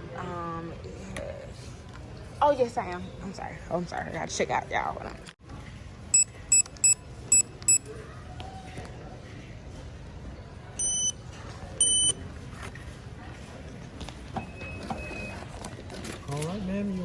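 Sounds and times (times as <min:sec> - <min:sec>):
low store background hum: 0:00.0 - 0:17.0
checkout scanner beeps: 0:06.1 - 0:07.9, 0:10.8 - 0:12.3, 0:14.2 - 0:15.7.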